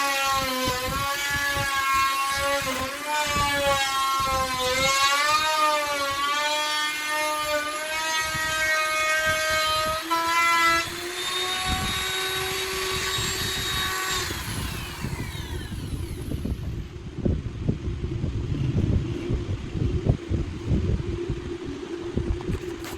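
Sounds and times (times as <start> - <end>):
electric router whining: 0.0 - 17.2.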